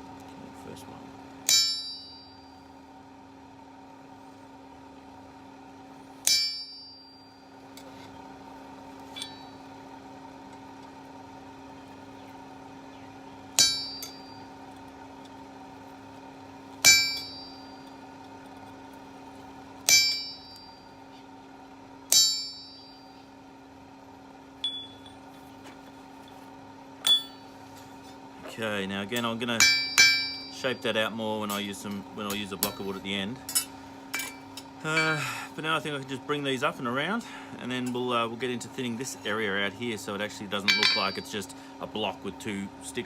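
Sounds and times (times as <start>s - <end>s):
hammer blows on steel anvil: 40.6s - 41.4s.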